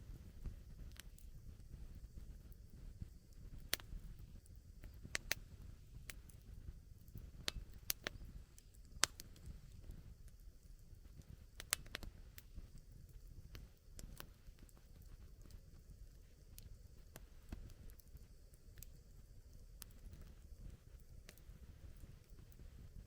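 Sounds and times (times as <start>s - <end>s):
low rumble of burning fire: 0.0s - 23.0s
campfire crackling and popping: 0.1s - 23.0s.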